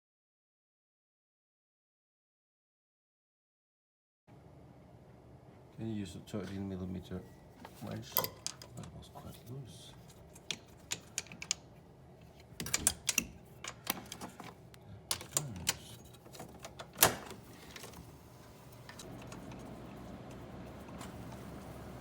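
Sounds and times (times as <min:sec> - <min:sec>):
faint hum: 0:04.3 - 0:22.0
wrench clicking on metal bolts: 0:08.1 - 0:08.7, 0:10.3 - 0:11.6, 0:12.6 - 0:14.4.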